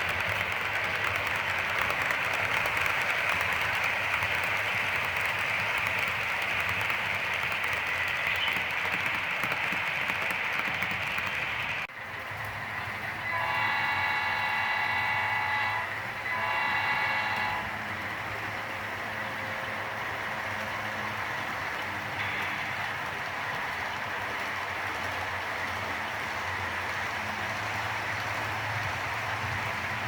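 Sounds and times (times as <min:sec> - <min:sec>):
model locomotive running: 0:00.0 - 0:30.0
locomotive horn blasts: 0:13.3 - 0:17.7.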